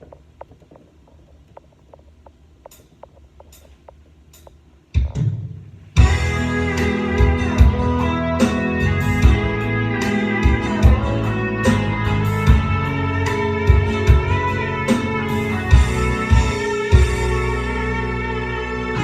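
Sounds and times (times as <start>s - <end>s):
loud hit: 5.2s - 19.0s
rock ballad band music: 6.0s - 19.0s.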